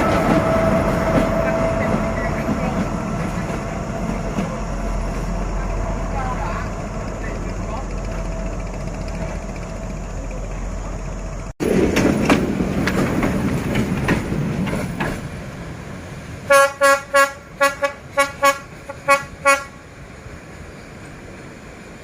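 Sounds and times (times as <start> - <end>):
train wheels clicking over rail joints: 0.0 - 16.4
locomotive horn short toots: 16.5 - 19.8.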